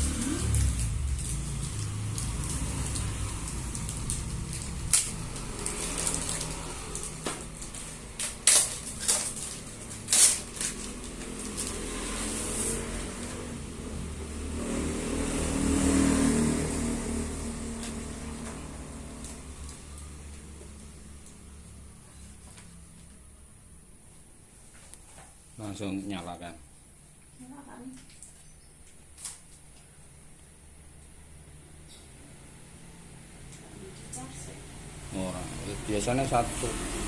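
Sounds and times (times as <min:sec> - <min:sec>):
low vehicle rumble: 0:00.0 - 0:23.6.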